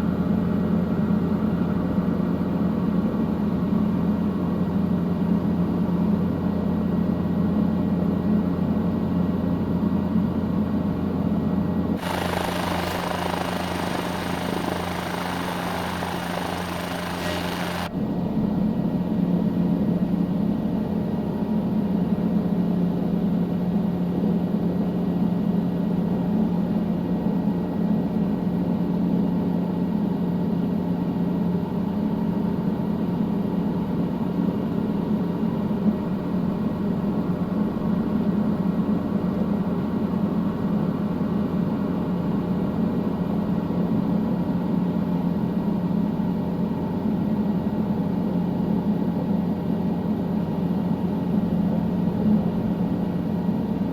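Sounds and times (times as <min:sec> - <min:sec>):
helicopter engine and rotor: 0:12.0 - 0:17.9.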